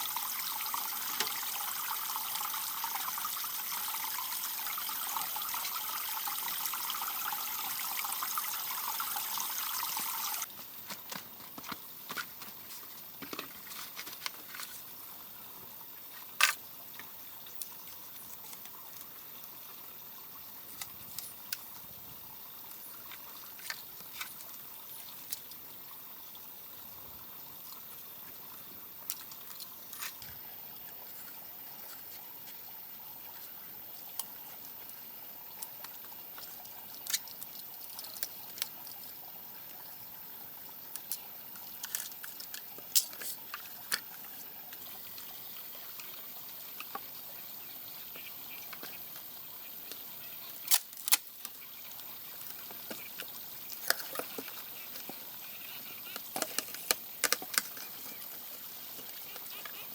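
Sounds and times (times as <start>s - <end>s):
water running and pouring: 0.0s - 10.5s.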